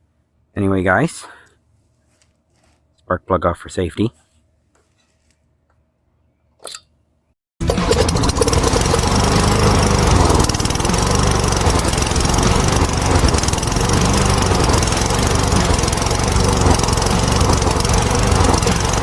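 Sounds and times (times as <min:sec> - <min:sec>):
lawn mower engine running: 0:07.6 - 0:19.0.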